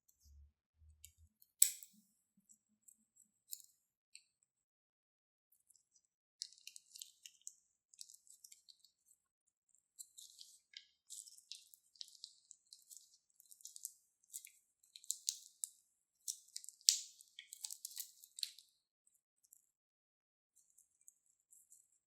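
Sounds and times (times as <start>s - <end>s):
crunchy slime crackling and squishing: 6.4s - 9.1s, 9.9s - 18.7s.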